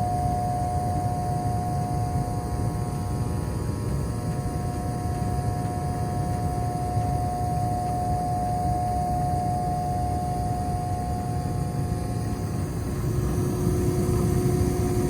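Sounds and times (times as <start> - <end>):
furnace motor buzzing: 0.0 - 15.0.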